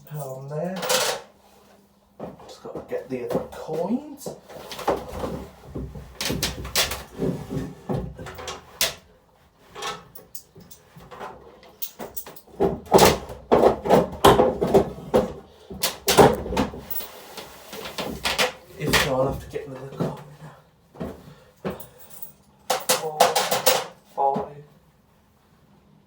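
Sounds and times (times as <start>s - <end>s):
coins clicking and knocking: 22.7s - 24.0s.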